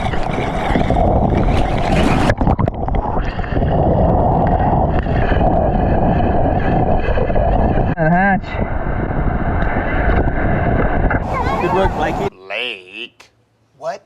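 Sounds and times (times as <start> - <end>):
rushing water: 0.0 - 7.9, 10.0 - 12.3
wind buffeting microphone: 0.0 - 12.3.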